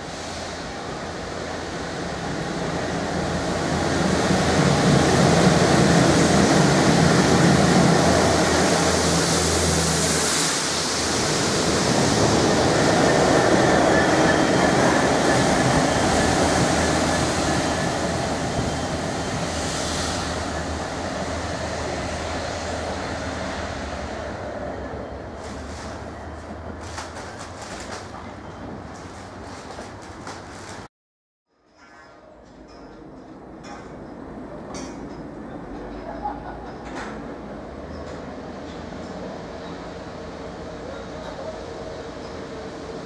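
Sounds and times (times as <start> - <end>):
diesel locomotive engine passing: 0.0 - 30.9
train rail noise: 0.0 - 30.9, 31.8 - 43.0.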